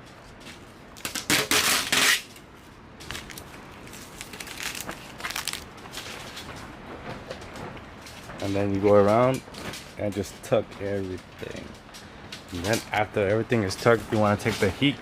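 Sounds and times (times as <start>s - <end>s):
vinyl wrap rustling and scraping: 0.5s - 6.5s.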